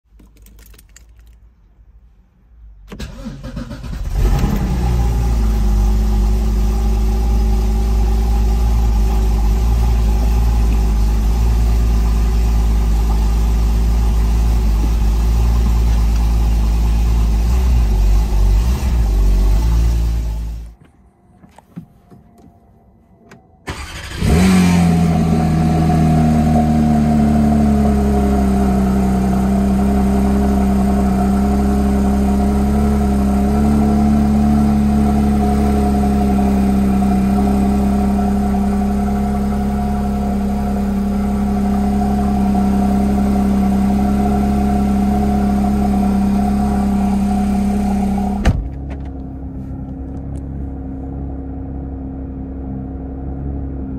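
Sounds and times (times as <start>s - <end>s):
car engine cranking: 2.8s - 20.7s, 23.7s - 29.8s
car engine starting and revving: 2.8s - 20.8s, 23.7s - 50.5s
car engine idling: 2.9s - 20.8s, 23.7s - 53.9s.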